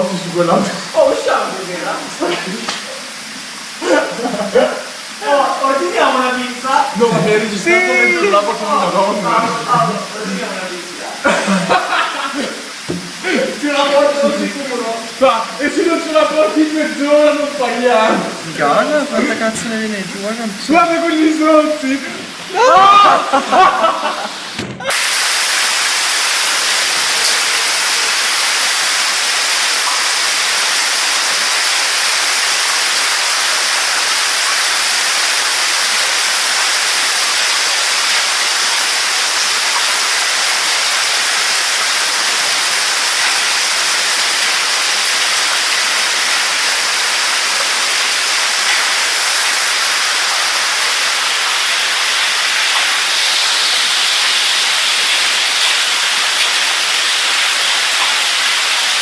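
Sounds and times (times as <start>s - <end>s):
hail and rain pelting down: 0.0s - 59.0s
sharp hail impacts: 24.5s - 59.0s.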